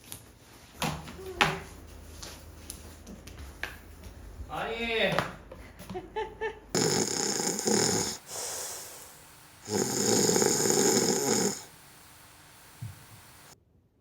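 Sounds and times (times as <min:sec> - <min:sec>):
person snoring: 0:06.8 - 0:13.6.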